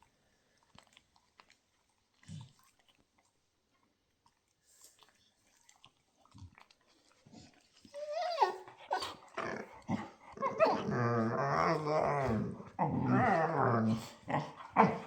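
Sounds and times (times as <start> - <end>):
dog grunts and clicks: 2.2 - 3.0, 5.8 - 15.0
dog whining and growling: 7.9 - 15.0.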